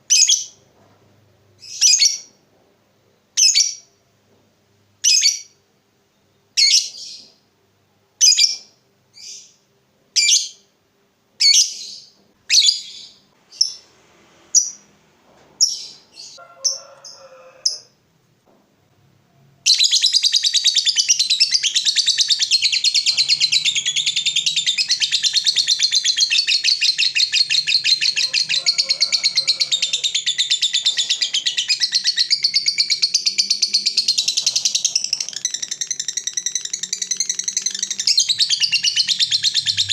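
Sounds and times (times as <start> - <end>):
lovebird chirping: 0.1 - 0.6, 8.2 - 9.6, 11.4 - 13.8, 15.6 - 17.2, 19.7 - 39.9
lovebird chattering trill: 19.7 - 39.9.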